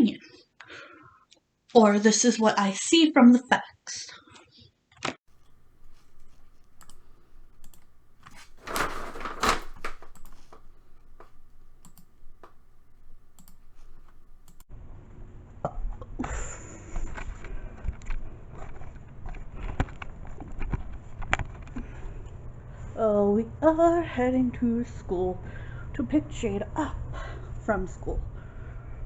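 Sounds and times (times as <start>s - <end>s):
rustling noise: 5.3s - 14.6s
light clicks and taps: 5.3s - 14.7s.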